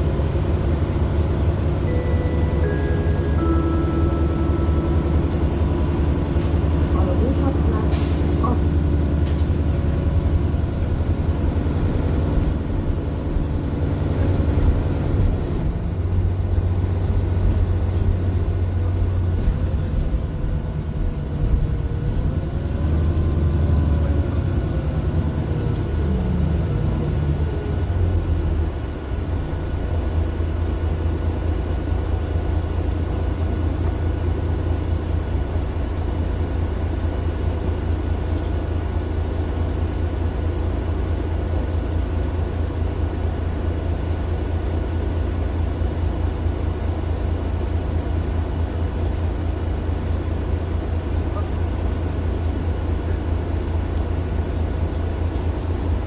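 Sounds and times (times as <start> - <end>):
diesel bus engine rumbling: 0.0 - 56.0.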